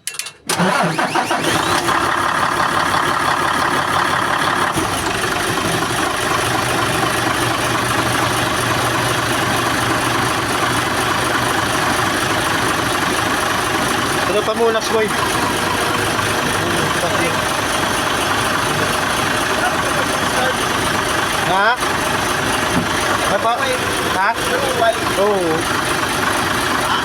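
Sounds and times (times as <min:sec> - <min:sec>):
diesel truck engine starting: 0:00.4 - 0:27.0.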